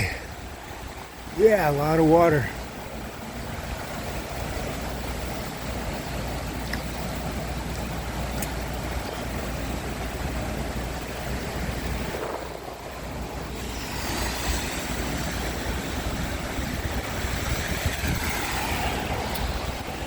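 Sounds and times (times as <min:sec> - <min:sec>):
stream rushing: 0:00.0 - 0:20.0
traffic on wet road: 0:00.0 - 0:20.0
vehicle passing: 0:13.4 - 0:20.0.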